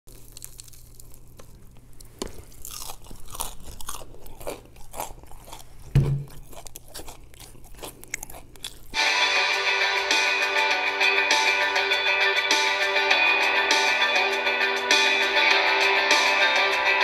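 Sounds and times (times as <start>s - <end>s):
crunching fried chicken: 0.1s - 9.0s
wet chewing: 0.1s - 9.0s
dull thump: 6.0s - 6.3s.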